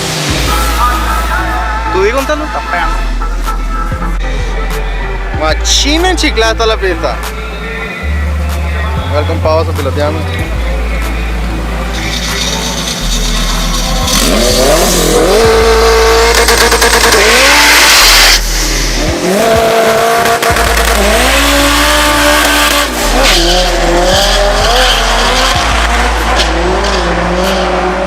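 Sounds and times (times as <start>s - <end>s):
car engine revving hard: 0.0s - 1.5s, 9.3s - 28.0s
tires squealing: 5.7s - 28.0s.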